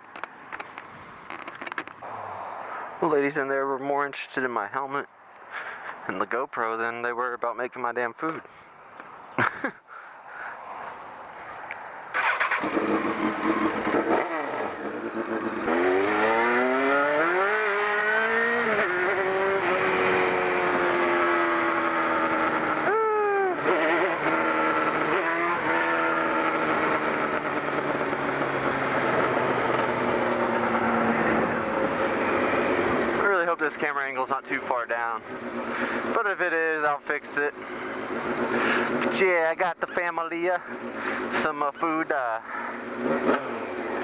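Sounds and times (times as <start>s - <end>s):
motorcycle engine accelerating: 12.1s - 33.4s, 35.1s - 36.8s, 37.5s - 39.2s, 40.6s - 41.4s, 42.4s - 44.0s.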